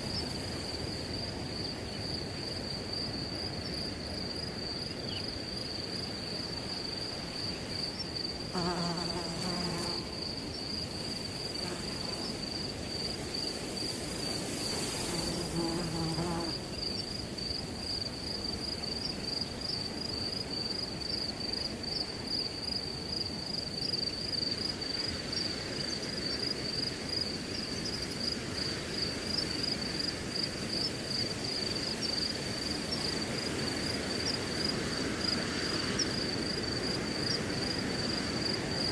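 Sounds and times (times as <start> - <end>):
crickets chirping: 0.0 - 38.9
wind through grass: 0.0 - 38.9
flying insect buzzing: 8.2 - 10.3, 11.3 - 12.7, 14.6 - 17.0.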